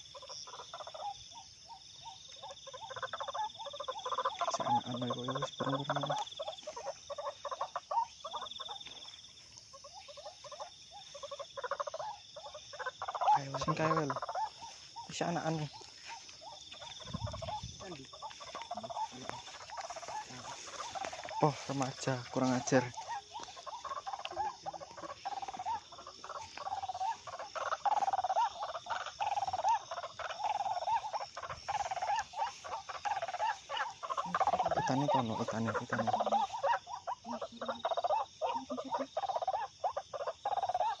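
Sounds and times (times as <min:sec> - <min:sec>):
waterhen calling: 0:00.0 - 0:41.0.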